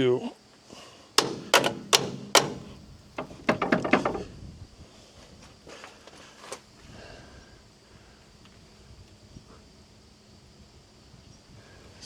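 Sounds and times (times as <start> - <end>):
faint handling: 1.2 - 4.3.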